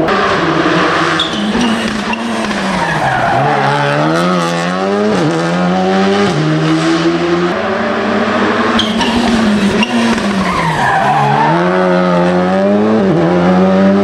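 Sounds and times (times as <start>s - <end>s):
gear changes: 0.0s - 5.6s, 7.4s - 12.5s
car engine accelerating hard: 0.0s - 14.0s.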